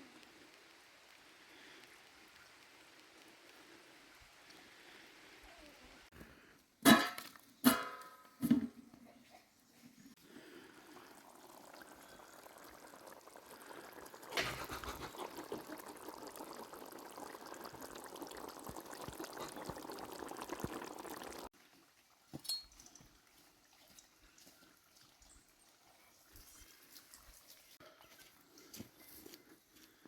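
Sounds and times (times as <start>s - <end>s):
liquid pouring: 10.3s - 21.5s.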